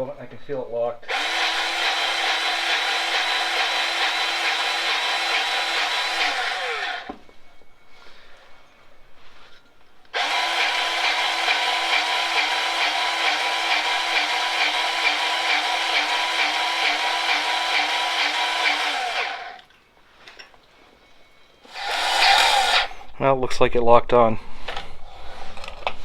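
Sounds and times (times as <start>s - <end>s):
grease gun motor running: 1.1s - 7.2s, 10.2s - 19.6s, 21.7s - 23.0s.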